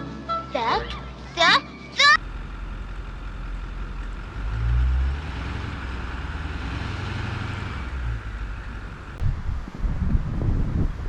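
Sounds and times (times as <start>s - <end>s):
diesel engine rumbling under load: 2.2s - 9.7s.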